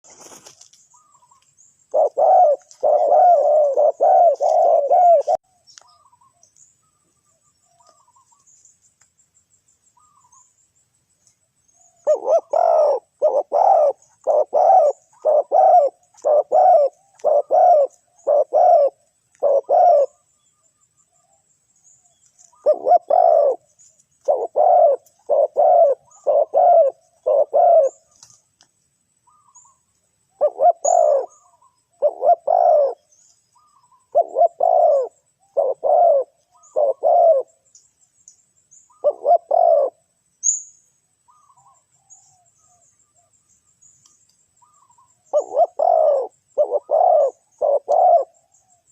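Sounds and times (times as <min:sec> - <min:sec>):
dove cooing: 0:01.9 - 0:06.4, 0:11.9 - 0:20.3, 0:22.5 - 0:28.4, 0:29.3 - 0:37.6, 0:38.9 - 0:40.0, 0:44.6 - 0:48.9.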